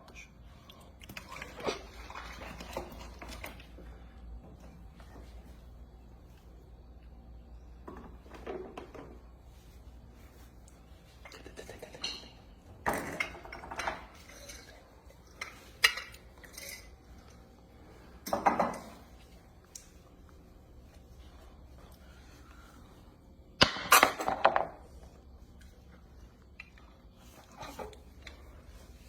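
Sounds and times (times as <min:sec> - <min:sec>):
dishes and utensils clattering: 0:11.3 - 0:17.0, 0:18.2 - 0:19.1.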